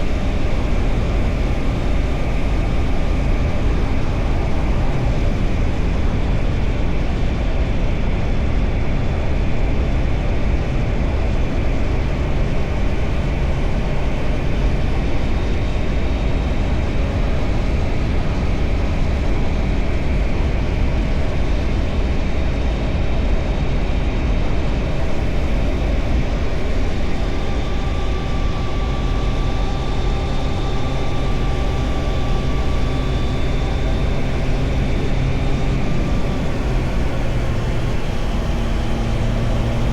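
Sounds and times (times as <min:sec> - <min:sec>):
wind rush over microphone: 0:00.0 - 0:39.9
motorcycle engine running: 0:24.9 - 0:39.9.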